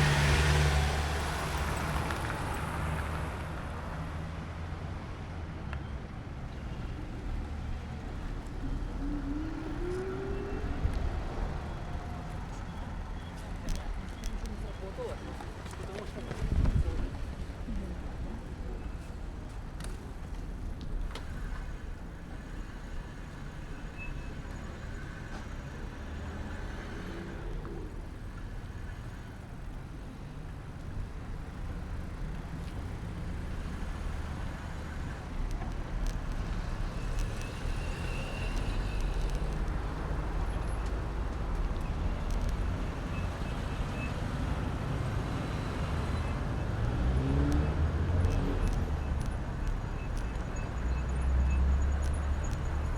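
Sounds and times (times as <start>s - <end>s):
street traffic rumble: 0.0s - 52.9s
wind noise: 16.4s - 17.5s.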